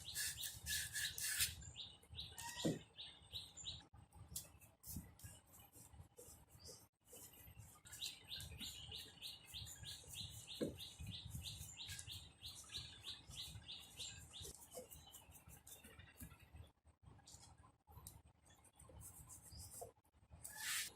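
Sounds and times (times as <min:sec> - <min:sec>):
bird chirping: 0:00.0 - 0:03.8, 0:05.7 - 0:16.2.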